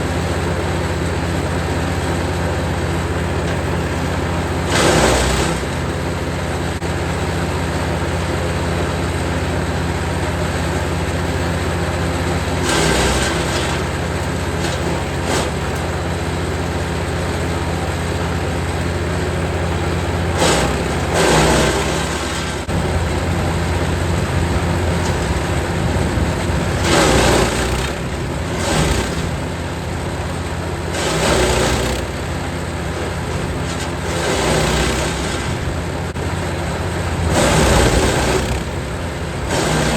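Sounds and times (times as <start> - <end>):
wood chipper engine running: 0.0 - 39.9
branches crackling in chipper: 9.2 - 39.9.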